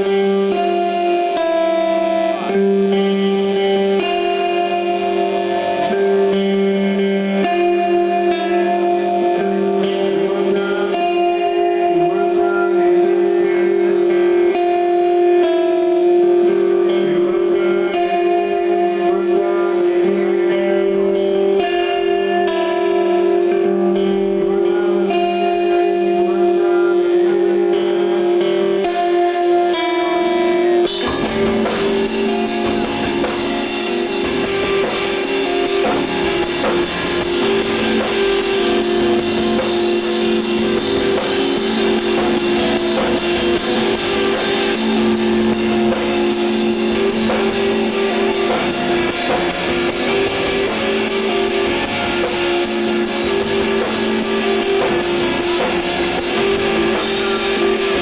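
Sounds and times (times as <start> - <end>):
electric guitar notes: 0.0 - 58.0
rock band playing: 0.0 - 58.0
drums beating fast: 30.8 - 58.0.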